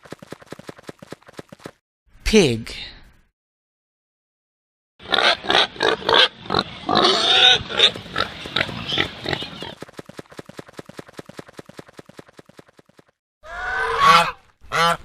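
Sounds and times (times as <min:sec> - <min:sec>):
pig grunting and squealing: 0:05.0 - 0:09.8, 0:13.4 - 0:14.4.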